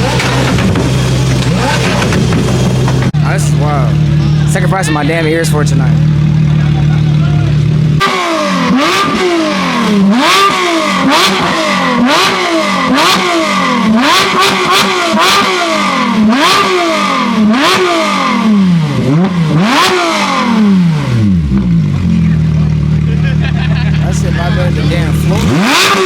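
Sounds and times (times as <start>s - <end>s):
exhaust pops and cracks: 0.0s - 3.2s
car engine revving: 0.0s - 26.0s.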